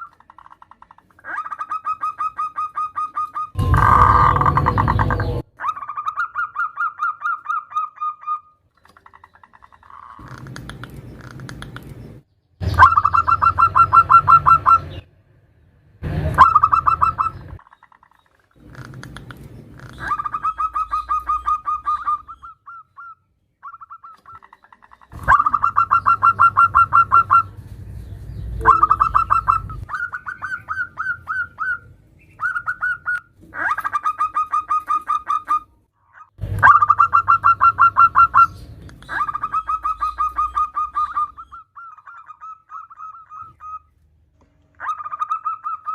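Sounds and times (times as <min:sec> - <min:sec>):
dove pulsed cooing: 0:25.2 - 0:27.5, 0:28.6 - 0:33.2.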